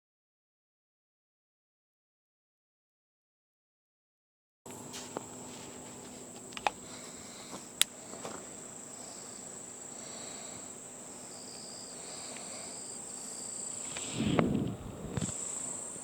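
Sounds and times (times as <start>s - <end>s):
insects trilling high: 4.7s - 16.0s
lower insect trill: 4.7s - 16.0s.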